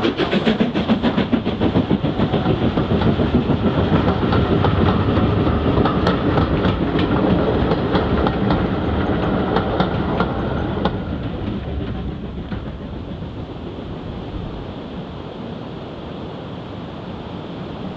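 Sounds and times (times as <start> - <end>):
wheels clicking over rail joints: 0.0 - 13.8
train carriages rumbling: 0.0 - 15.2.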